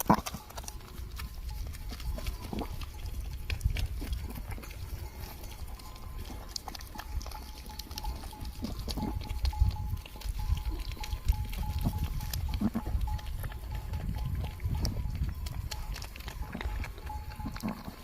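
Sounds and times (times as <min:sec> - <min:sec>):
faint steady tone: 0:04.3 - 0:18.0.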